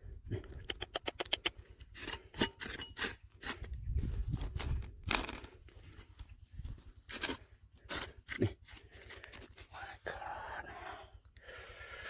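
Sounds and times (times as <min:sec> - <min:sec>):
gravel crunching and scraping: 0:01.3 - 0:10.8.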